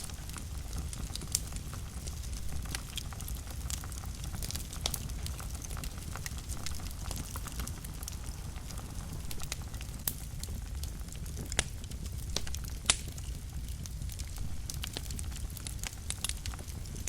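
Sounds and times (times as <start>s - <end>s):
wood fire burning: 0.0s - 17.0s.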